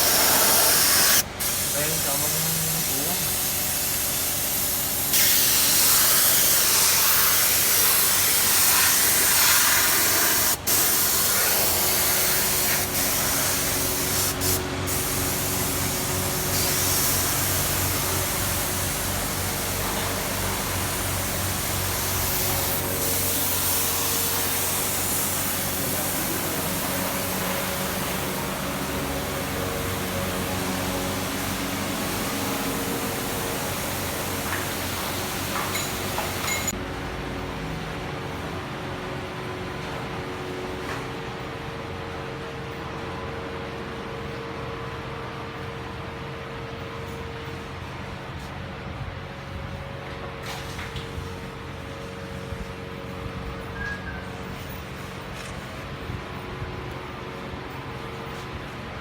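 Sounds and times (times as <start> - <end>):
spray gun hissing: 0.0 - 36.8
steady low hum: 11.0 - 40.7.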